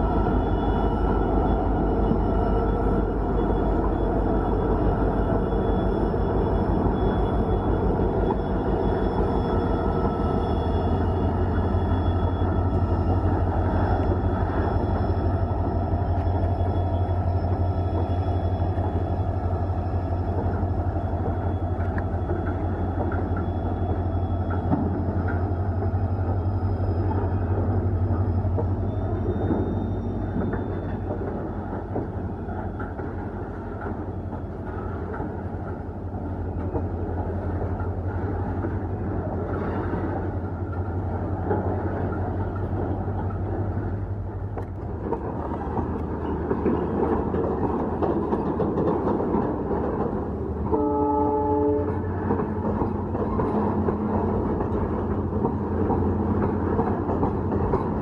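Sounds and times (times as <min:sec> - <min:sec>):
locomotive engine drone: 0:00.0 - 0:58.0
train wheels clattering on rails: 0:00.0 - 0:58.0
train horn blast: 0:50.6 - 0:52.3.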